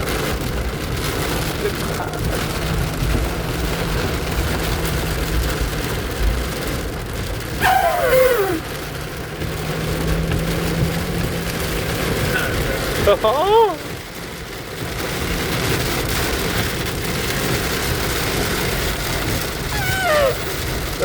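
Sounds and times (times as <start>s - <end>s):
engine and road hum: 0.0s - 21.0s
heavy rain on a vehicle: 0.0s - 21.0s
downward sliding tone: 19.7s - 20.6s.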